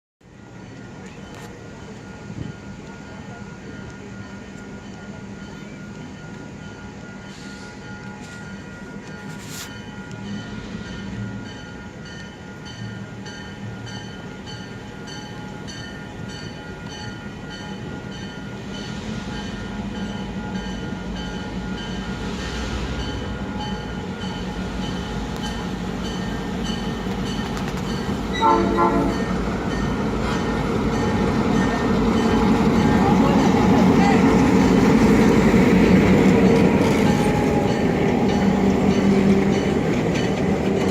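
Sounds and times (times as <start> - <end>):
diesel locomotive engines droning: 0.2 - 40.9
train bell ringing: 0.3 - 40.9
locomotive horn blast: 28.3 - 29.4.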